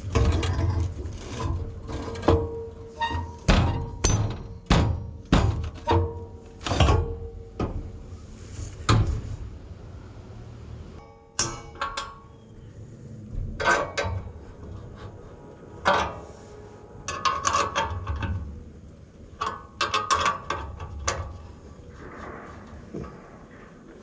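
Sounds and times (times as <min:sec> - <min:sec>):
hand tools clanking on steel: 0:00.0 - 0:07.8, 0:11.0 - 0:12.4.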